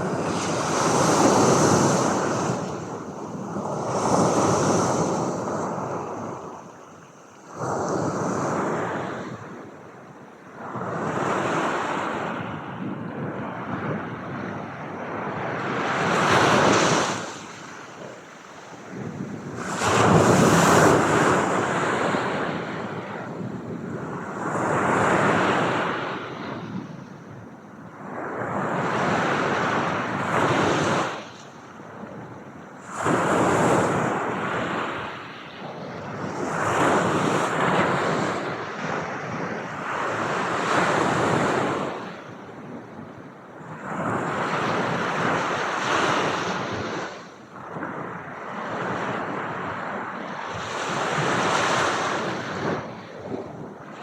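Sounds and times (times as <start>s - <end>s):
ocean waves breaking: 15.3s - 26.4s.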